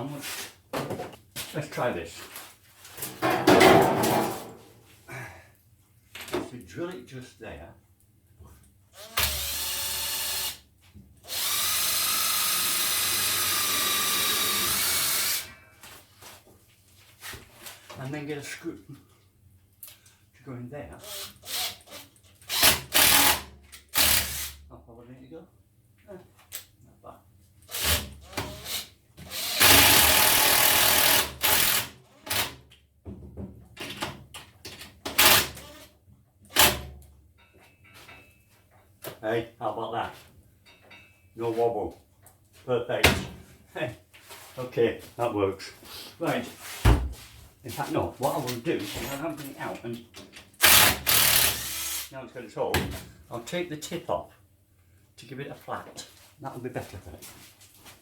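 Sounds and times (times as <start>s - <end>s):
power drill whining: 9.0s - 10.6s, 11.3s - 15.5s, 28.5s - 32.4s, 50.6s - 52.1s.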